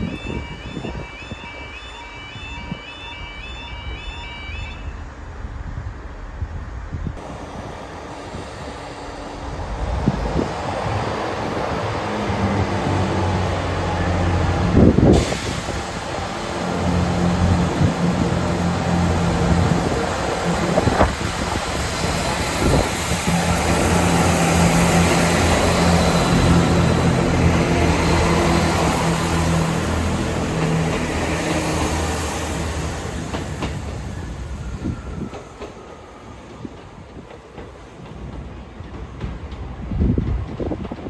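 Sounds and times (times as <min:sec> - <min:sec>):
train wheels on rails: 0:05.2 - 0:41.0
diesel train engine running: 0:07.2 - 0:36.2.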